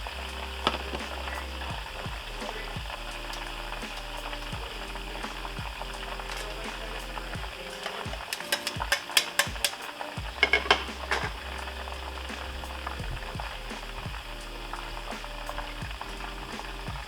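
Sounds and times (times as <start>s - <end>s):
utensil clinking against pan: 7.7s - 11.3s.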